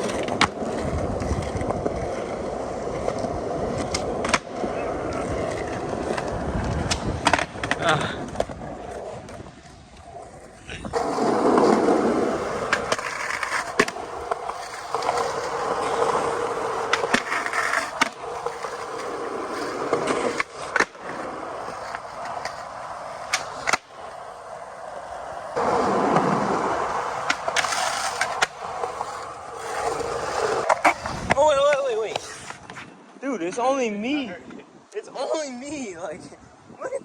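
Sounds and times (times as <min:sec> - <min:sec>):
skateboard clicks and knocks: 0:00.0 - 0:32.9
skateboard wheels rolling on pavement: 0:00.0 - 0:37.0.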